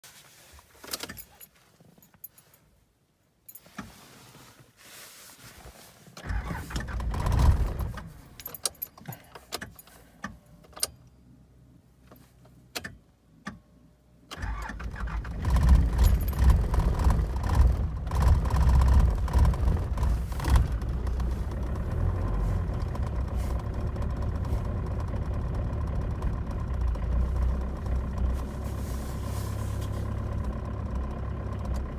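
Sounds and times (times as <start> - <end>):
keys jingling: 0.9 - 2.7, 8.0 - 10.0, 15.9 - 16.7
engine cranking: 6.2 - 9.2, 14.3 - 31.9
diesel engine idling: 15.0 - 31.9.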